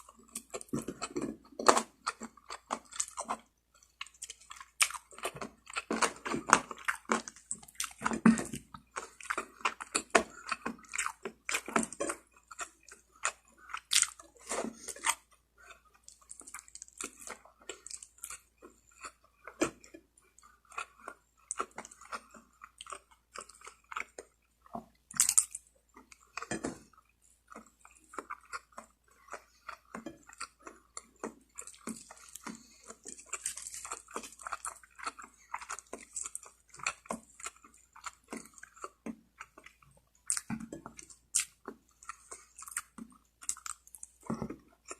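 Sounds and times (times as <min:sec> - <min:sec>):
person chewing food: 0:00.0 - 0:44.9
mouth clicks and smacks: 0:27.5 - 0:44.9.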